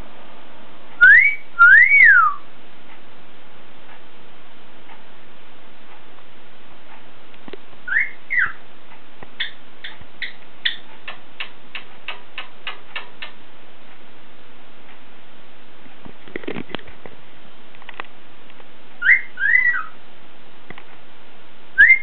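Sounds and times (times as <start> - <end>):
cockatiel whistling: 1.0 - 2.4, 7.9 - 8.6, 19.0 - 20.0, 21.8 - 22.0.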